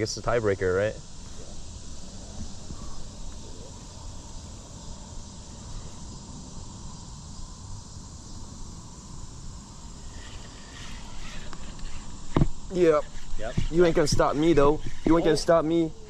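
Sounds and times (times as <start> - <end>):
even hiss: 0.0 - 16.0.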